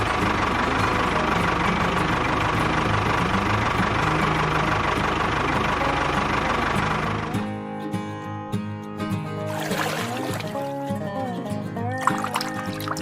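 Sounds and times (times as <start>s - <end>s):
machine engine running: 0.0s - 7.7s.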